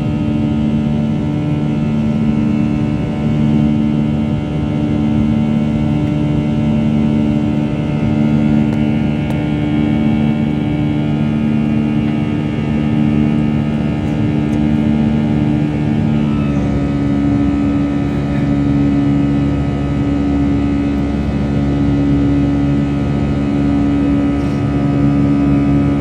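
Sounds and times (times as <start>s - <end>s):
airliner engines droning in cabin: 0.0s - 26.0s.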